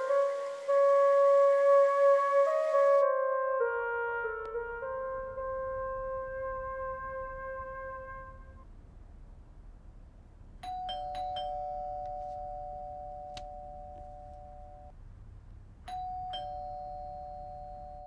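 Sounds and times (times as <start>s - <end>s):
two-tone doorbell chime: 10.6s - 14.9s, 15.9s - 18.0s.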